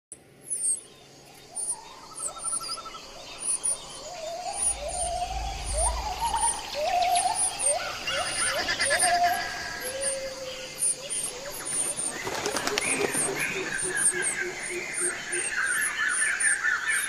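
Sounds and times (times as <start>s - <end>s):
thin high bird chirps: 0.5s - 12.8s
bird trill: 0.5s - 17.0s
low upward-sliding bird call: 2.2s - 11.5s.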